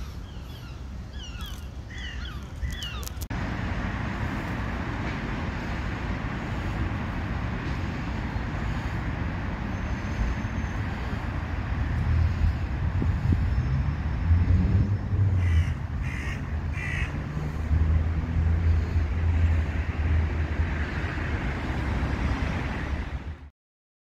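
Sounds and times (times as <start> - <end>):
bird calling: 0.0 - 3.2, 15.4 - 17.2
low rumble of city traffic: 0.0 - 23.5.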